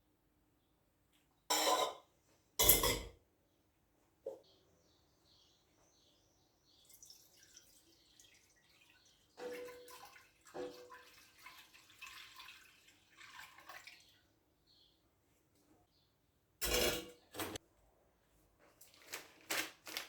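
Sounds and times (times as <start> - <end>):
faint splashing water: 6.8 - 14.4.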